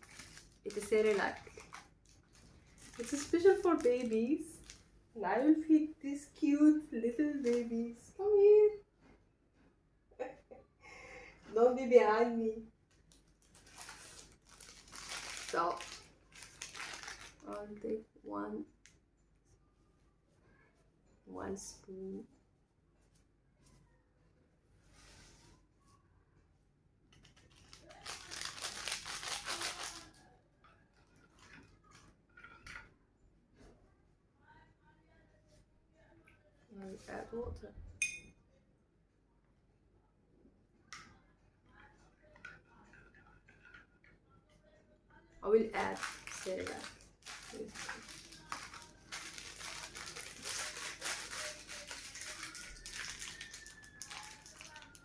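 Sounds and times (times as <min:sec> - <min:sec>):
packet crinkling and rustling: 0:00.0 - 0:04.9, 0:12.9 - 0:17.8, 0:27.1 - 0:30.2, 0:45.7 - 0:55.0.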